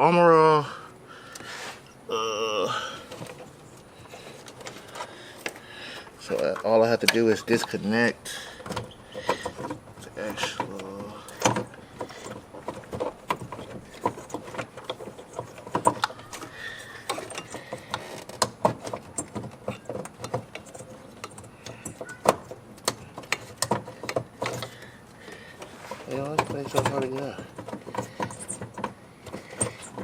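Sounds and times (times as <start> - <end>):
plastic clicks and rattles: 8.6 - 30.0.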